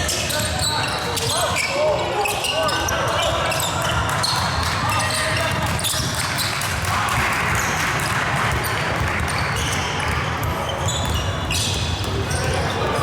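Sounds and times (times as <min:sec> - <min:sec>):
murmur of players and spectators: 0:00.0 - 0:13.0
basketball bouncing on court: 0:03.8 - 0:06.5, 0:07.1 - 0:13.0.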